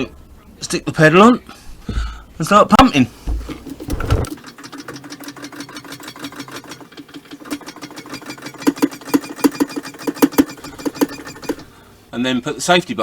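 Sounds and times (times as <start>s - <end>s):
hydraulic foot pump clicking: 6.3s - 11.7s.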